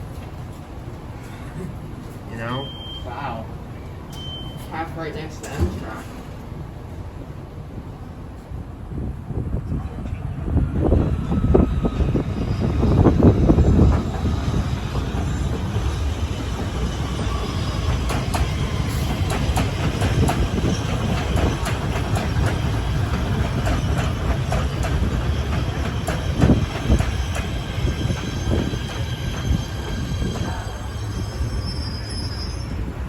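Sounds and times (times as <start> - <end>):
train rumbling past: 0.0 - 33.0
wheels clacking over rails: 13.2 - 30.6
high wheel squeal: 26.5 - 33.0.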